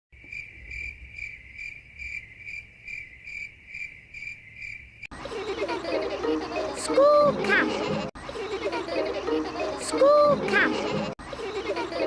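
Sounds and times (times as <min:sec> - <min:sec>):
cricket chirping: 0:00.2 - 0:05.1.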